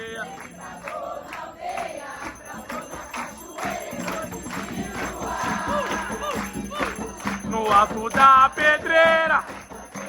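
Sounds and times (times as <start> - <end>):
group singing call-and-response: 0.0 - 10.0
hand percussion beat: 0.0 - 10.0.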